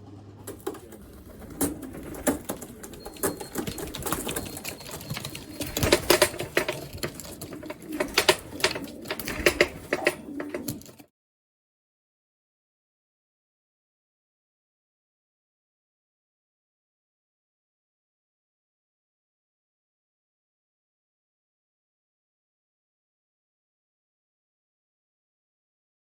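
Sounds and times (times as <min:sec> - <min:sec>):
pigeon wings flapping: 0:00.4 - 0:11.1.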